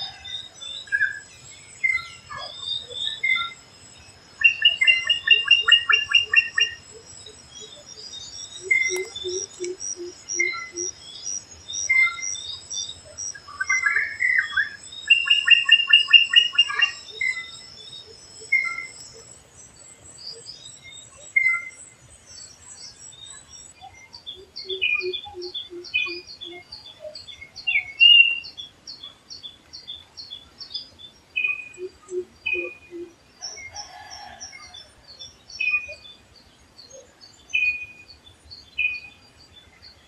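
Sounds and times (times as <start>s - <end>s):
bird chirping: 0.0s - 34.0s, 34.6s - 40.0s.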